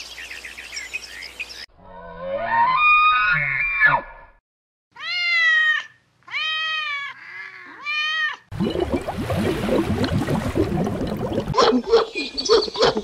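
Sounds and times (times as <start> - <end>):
cat meowing: 5.0 - 8.5.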